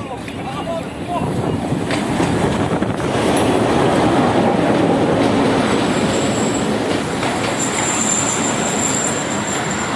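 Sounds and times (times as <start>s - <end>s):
train rumbling on rails: 0.0s - 9.9s
high metal squeal: 7.6s - 9.9s.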